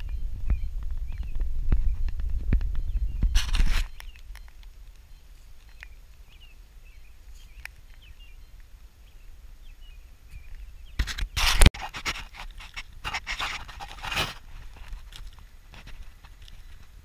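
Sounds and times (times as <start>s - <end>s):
low background rumble: 0.0s - 11.0s
bird chirps: 0.0s - 11.4s.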